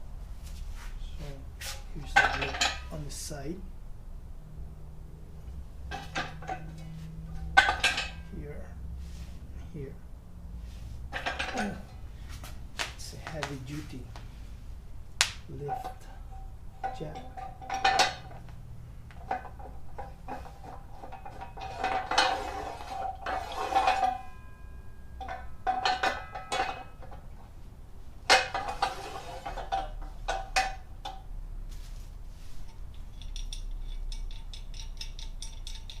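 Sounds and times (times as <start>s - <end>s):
steel parts clinking and clanking: 1.6s - 3.3s, 5.4s - 8.8s, 11.0s - 14.4s, 15.2s - 27.6s, 28.2s - 31.3s, 32.4s - 36.0s.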